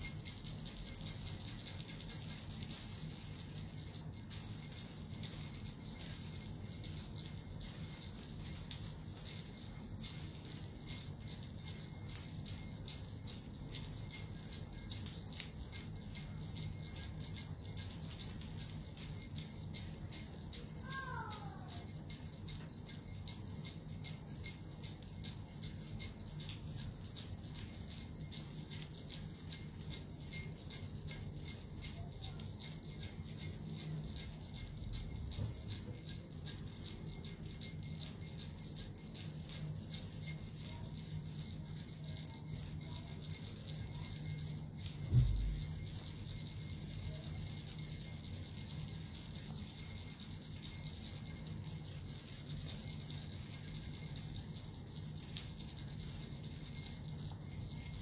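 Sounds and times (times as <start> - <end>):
bells and rattle jingling: 0.0 - 58.0
low thump: 45.1 - 45.7.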